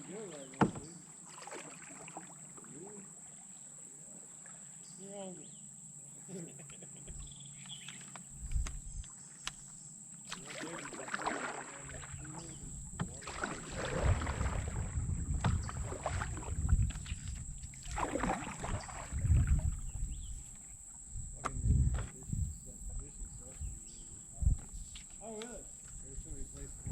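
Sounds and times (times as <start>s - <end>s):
paddle splashing in water: 0.0s - 4.8s, 10.2s - 21.6s
paddle knocks: 0.1s - 2.7s, 10.3s - 19.1s.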